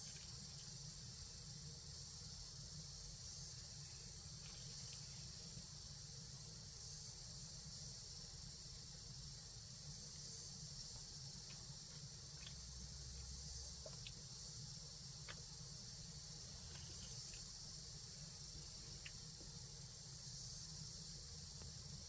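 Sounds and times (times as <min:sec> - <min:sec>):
high-pitched hiss: 0:00.0 - 0:22.0
faint ticks: 0:10.2 - 0:19.8.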